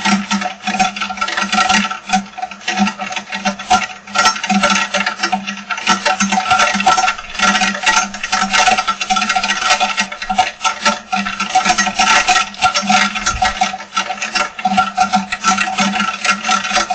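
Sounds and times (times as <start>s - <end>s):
steady hum: 6.4s - 16.9s.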